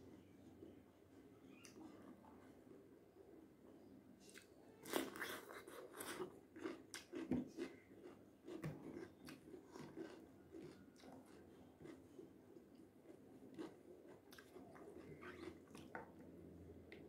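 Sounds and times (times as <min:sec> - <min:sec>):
person chewing cucumber crunchily: 0:04.2 - 0:17.0.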